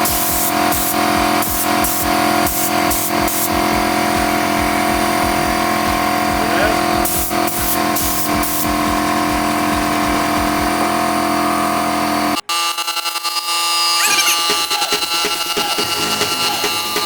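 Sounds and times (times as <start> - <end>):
spray gun hissing: 0.0 - 3.7, 6.4 - 8.8
air compressor humming: 0.0 - 11.7.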